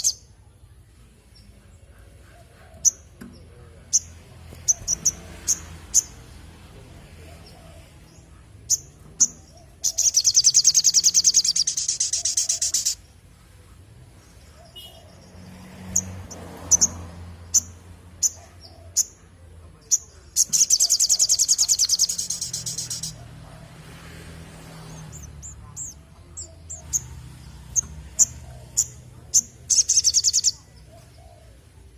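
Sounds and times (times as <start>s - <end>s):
bird chirping: 0.0s - 0.3s, 1.2s - 6.4s, 7.2s - 13.2s, 14.2s - 31.9s
bird trilling: 8.7s - 13.0s, 19.9s - 23.2s, 27.7s - 31.4s.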